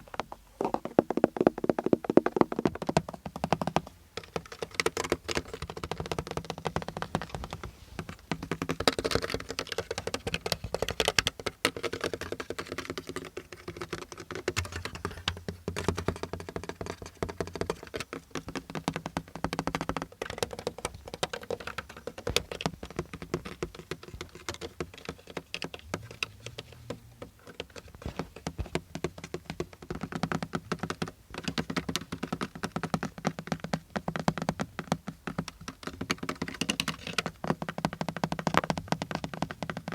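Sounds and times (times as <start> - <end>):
fast hollow tapping on car: 0.0 - 39.9.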